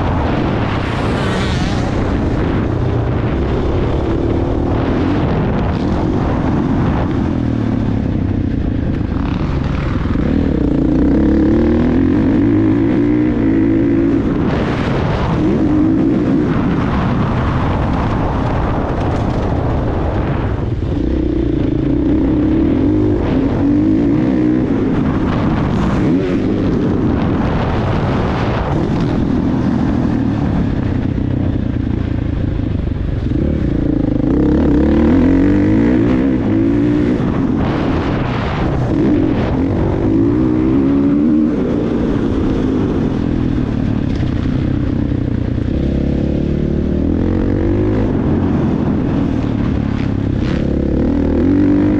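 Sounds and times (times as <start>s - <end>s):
dirt bike engine revving: 0.0s - 18.8s, 20.9s - 30.8s, 33.2s - 44.7s, 45.4s - 51.9s.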